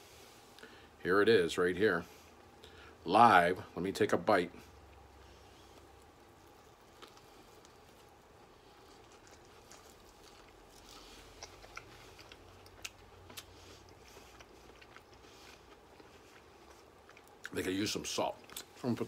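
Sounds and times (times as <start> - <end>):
chewing crunchy celery: 4.8 - 19.0.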